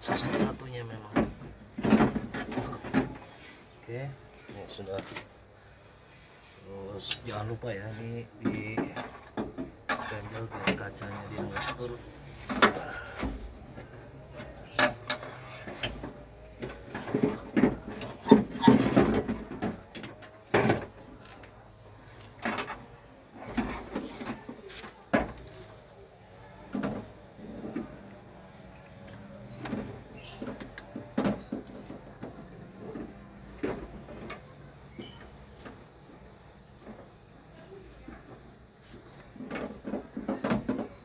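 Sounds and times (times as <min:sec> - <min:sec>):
tools and parts clattering: 0:00.0 - 0:03.4, 0:08.4 - 0:25.7.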